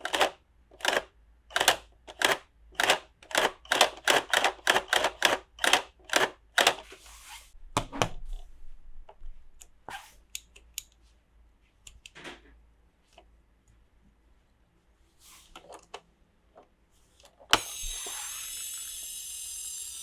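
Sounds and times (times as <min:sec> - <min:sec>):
plastic toy pieces clicking: 0:00.0 - 0:06.8.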